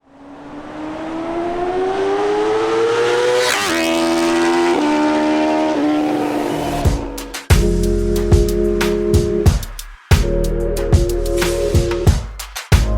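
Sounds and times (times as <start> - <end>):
motorcycle engine accelerating past: 0.0 - 7.2.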